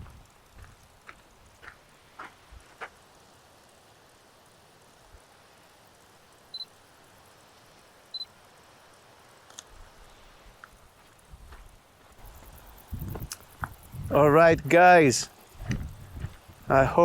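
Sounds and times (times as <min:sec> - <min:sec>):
camera double beep: 0:06.5 - 0:06.7, 0:08.1 - 0:08.3
faint camera clicks: 0:09.4 - 0:09.8.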